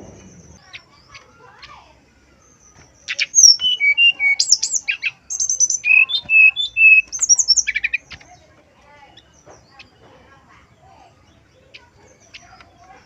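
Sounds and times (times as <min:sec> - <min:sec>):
bird singing whistled trills: 0:02.3 - 0:08.2.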